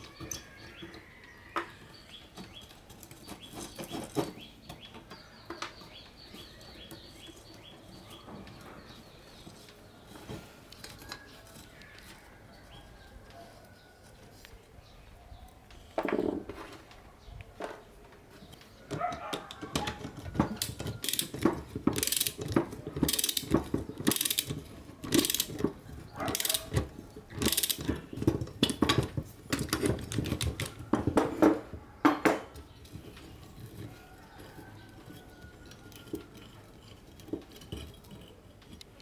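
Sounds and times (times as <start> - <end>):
hand tools scraping rusted metal: 19.2 - 30.8, 32.6 - 39.0
metallic clicks: 19.5 - 28.0.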